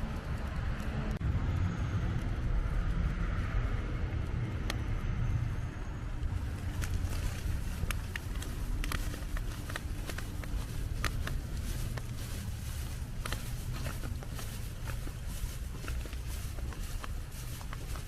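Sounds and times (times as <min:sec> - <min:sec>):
low rumble: 0:00.0 - 0:18.0
car tyres hissing on snow: 0:06.3 - 0:18.0.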